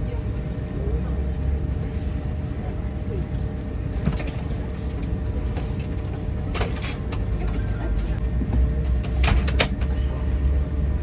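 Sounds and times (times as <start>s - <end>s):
vehicle rumble from inside: 0.0s - 11.0s.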